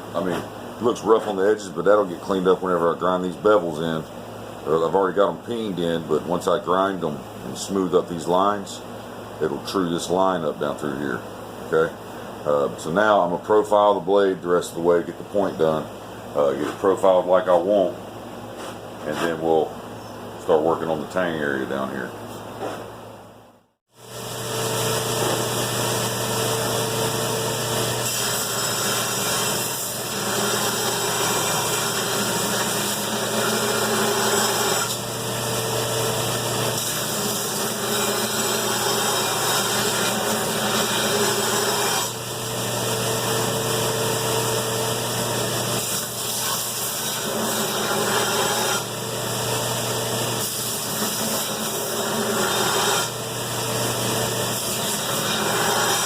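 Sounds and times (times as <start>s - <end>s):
grinder motor hum: 24.0s - 56.0s
belt grinder grinding steel: 27.8s - 35.0s, 36.4s - 42.2s, 45.4s - 48.9s, 50.2s - 53.6s, 54.4s - 56.0s.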